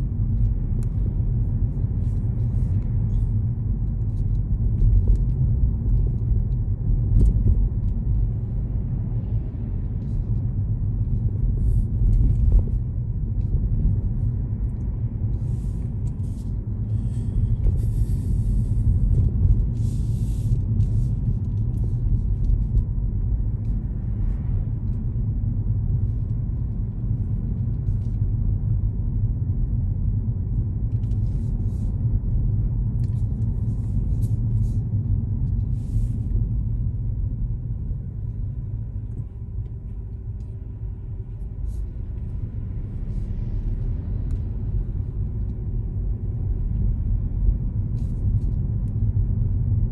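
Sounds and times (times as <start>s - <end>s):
car driving on road: 0.0s - 49.9s.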